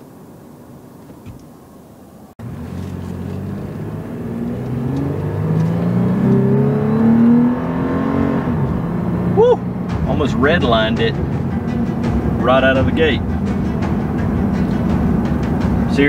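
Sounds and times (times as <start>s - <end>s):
engine accelerating hard: 2.4s - 16.0s
low cabin hum: 8.5s - 16.0s.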